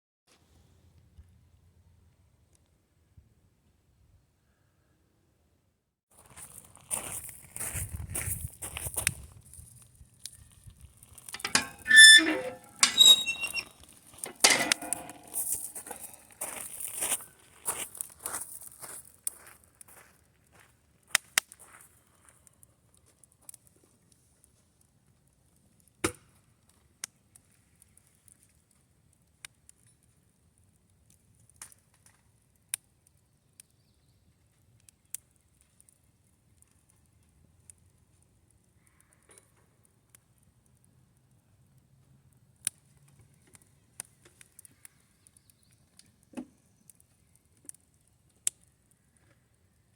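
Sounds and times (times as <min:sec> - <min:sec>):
campfire crackling: 0:06.1 - 0:49.9
metal cookware clanking: 0:11.4 - 0:13.7, 0:14.3 - 0:15.9
sharp pops and snaps: 0:21.1 - 0:22.4, 0:25.6 - 0:33.8, 0:34.5 - 0:49.2.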